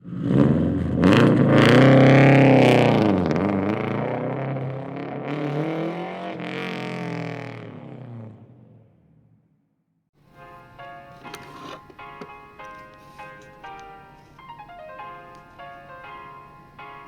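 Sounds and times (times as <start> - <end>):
car engine revving: 0.0 - 9.2.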